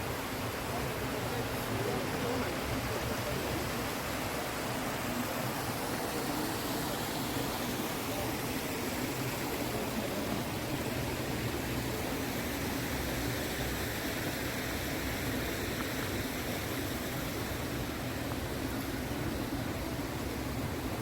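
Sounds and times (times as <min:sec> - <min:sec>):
flowing water rushing: 0:00.0 - 0:21.0.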